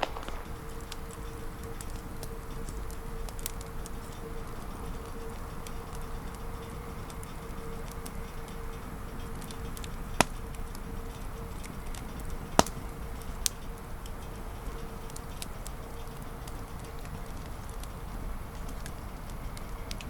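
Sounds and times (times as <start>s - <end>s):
sharp fire pops: 0.0s - 2.3s, 12.5s - 12.9s
campfire crackling: 0.0s - 20.0s.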